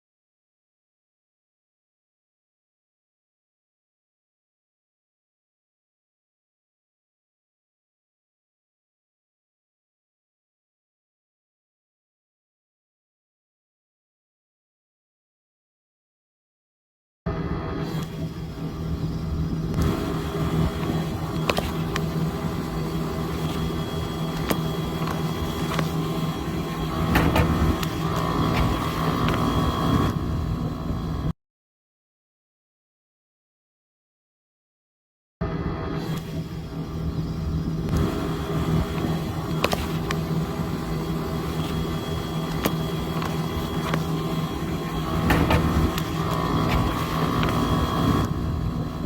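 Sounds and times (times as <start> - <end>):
machine hum: 17.3 - 31.3, 35.4 - 49.0.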